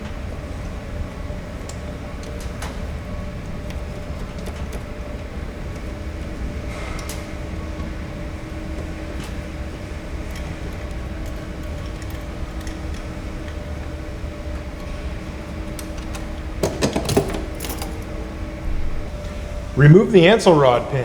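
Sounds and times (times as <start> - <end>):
hand tools clicking on metal: 15.8 - 18.1.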